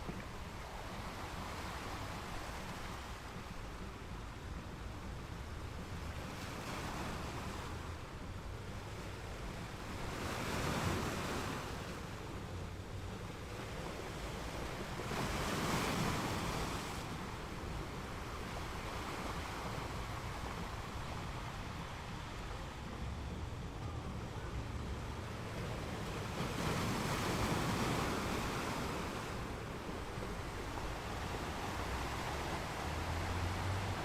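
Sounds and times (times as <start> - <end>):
ocean waves washing in: 0.0 - 34.0.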